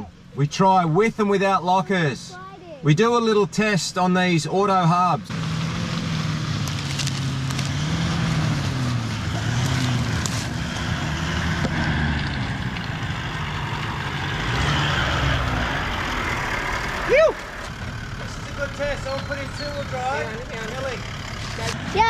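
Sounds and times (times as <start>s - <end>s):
diesel engine revving: 5.1s - 22.0s.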